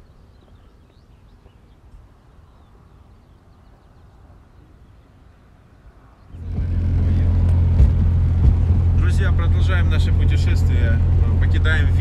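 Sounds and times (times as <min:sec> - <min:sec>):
small birds chirping: 0:00.0 - 0:07.3
low background rumble: 0:06.3 - 0:12.0.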